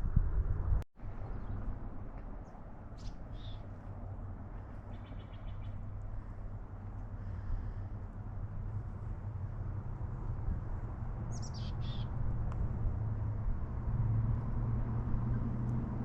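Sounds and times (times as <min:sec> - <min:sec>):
steady low rumble: 0:00.0 - 0:16.0
bird chirps: 0:02.4 - 0:03.7, 0:04.9 - 0:05.8, 0:11.3 - 0:12.1
bird trill: 0:03.0 - 0:03.7, 0:04.9 - 0:05.8, 0:11.3 - 0:12.1.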